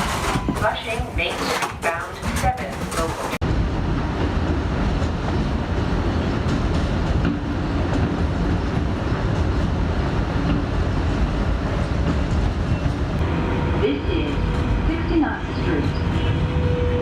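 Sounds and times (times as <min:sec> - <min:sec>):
train wheels on rails: 0:00.0 - 0:13.3.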